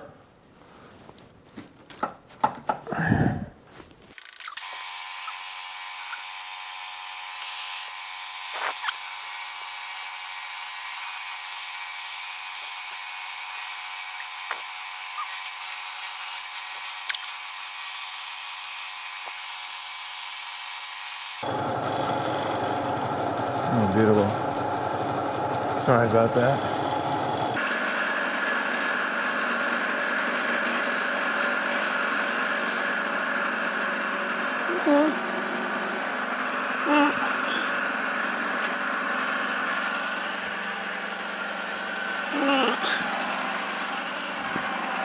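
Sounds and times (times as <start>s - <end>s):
handling knocks and clicks: 1.5s - 2.9s
small power tool whining: 4.2s - 45.0s.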